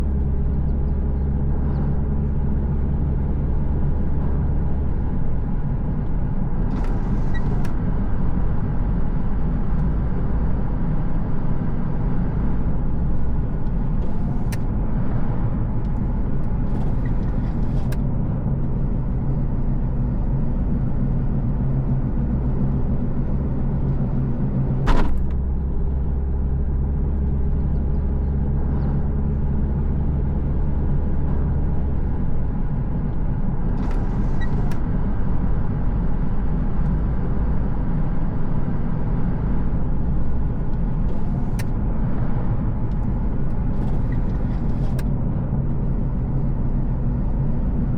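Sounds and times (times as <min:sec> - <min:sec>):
car engine and road rumble: 0:00.0 - 0:47.9.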